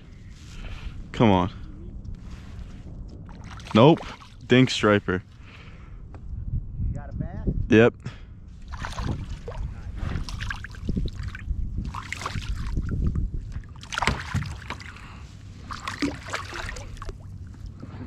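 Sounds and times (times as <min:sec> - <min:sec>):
steady low rumble: 0:00.0 - 0:18.0
water splashing against kayak: 0:02.6 - 0:05.5, 0:08.6 - 0:18.0.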